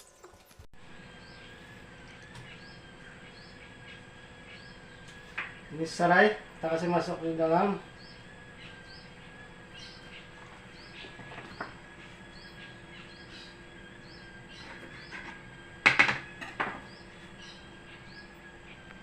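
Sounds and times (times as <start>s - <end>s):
small bird chirping: 1.0s - 19.0s
kitchen knocks and clatters: 15.2s - 16.9s.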